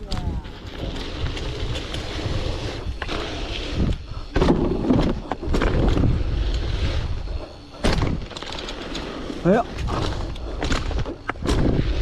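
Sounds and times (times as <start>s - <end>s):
wind rushing over microphone: 0.0s - 8.3s, 9.6s - 12.0s
bicycle knocking and rattling: 0.0s - 12.0s
bicycle tyres on dirt: 0.0s - 12.0s.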